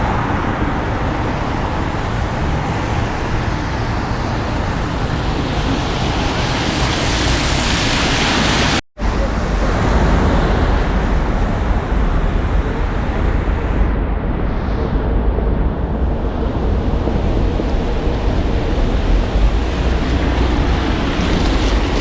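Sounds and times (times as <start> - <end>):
street traffic noise: 0.0 - 22.0
low rumble: 9.0 - 22.0.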